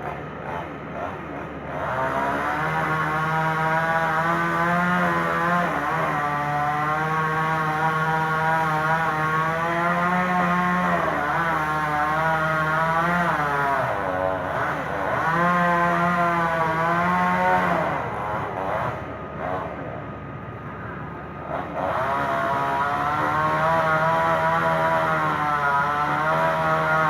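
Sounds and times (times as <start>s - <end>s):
chainsaw running at high speed: 0.0s - 20.0s, 21.3s - 27.0s.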